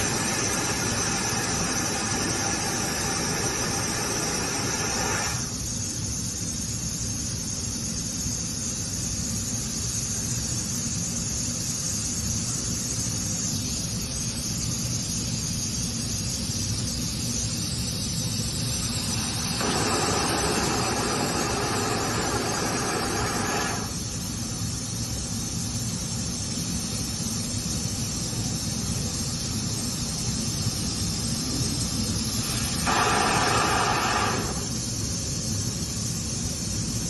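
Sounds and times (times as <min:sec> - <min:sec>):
machine humming: 0:00.0 - 0:05.6, 0:18.8 - 0:24.6, 0:31.5 - 0:35.0
hiss of rushing air: 0:00.0 - 0:06.8, 0:18.2 - 0:37.0
loud rushing noise: 0:32.8 - 0:34.8.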